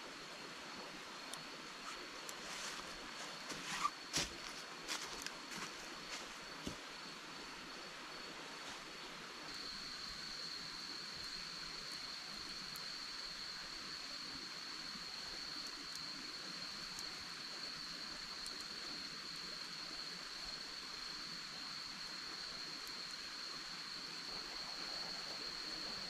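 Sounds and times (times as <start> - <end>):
insects trilling: 0.0 - 26.0
running water hiss: 0.0 - 26.0
faint ticks: 1.2 - 3.8, 18.1 - 18.8.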